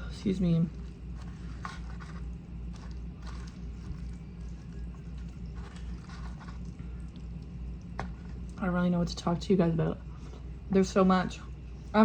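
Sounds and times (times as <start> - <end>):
steady low hum: 0.0 - 12.0
person chewing food: 0.6 - 8.6.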